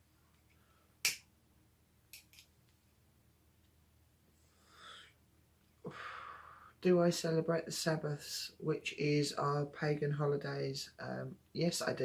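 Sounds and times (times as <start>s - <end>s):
soft breath: 4.3s - 5.2s, 5.8s - 6.8s.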